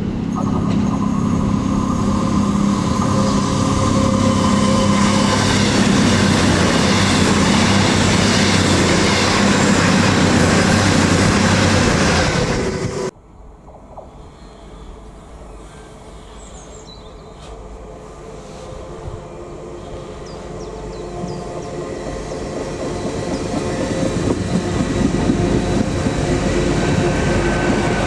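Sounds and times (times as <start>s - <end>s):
train engine tones: 0.0s - 13.1s, 13.8s - 28.0s
wheel and rail noise: 0.0s - 15.6s.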